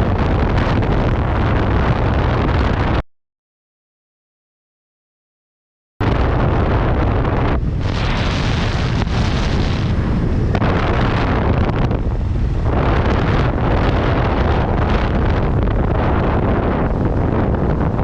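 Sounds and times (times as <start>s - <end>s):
wind rushing over microphone: 0.0s - 3.0s, 6.0s - 18.0s.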